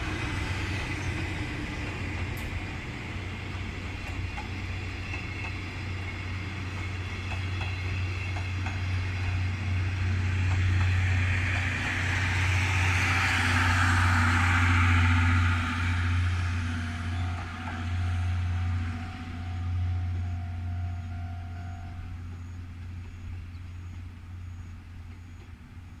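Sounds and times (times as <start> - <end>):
train wheel and rail noise: 0.0 - 26.0.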